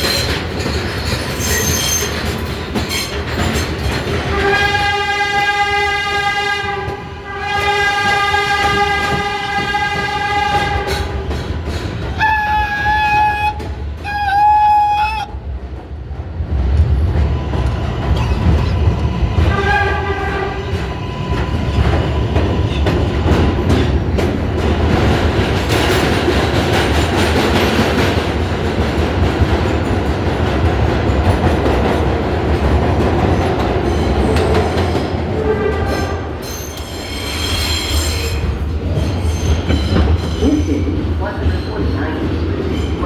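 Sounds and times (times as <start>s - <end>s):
wheels clacking over rail joints: 0.0s - 14.6s
subway train rumbling on rails: 0.0s - 43.0s.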